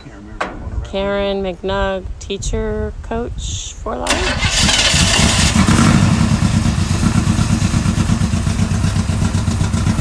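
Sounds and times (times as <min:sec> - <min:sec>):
rough-running engine pulsing: 0:04.1 - 0:10.0.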